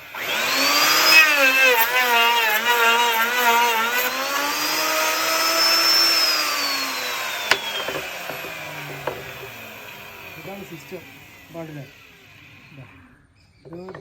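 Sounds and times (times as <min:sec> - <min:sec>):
wood router cutting wood: 0:00.0 - 0:14.0
sharp knocks: 0:07.4 - 0:09.8.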